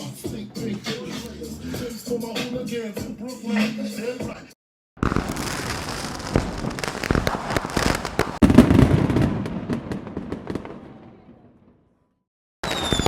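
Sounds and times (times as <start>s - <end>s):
sharp pops and crackles: 5.0s - 8.7s.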